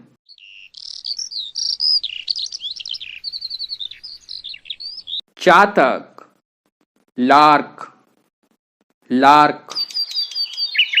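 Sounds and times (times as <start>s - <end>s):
starling singing: 0.3s - 5.3s, 9.7s - 11.0s.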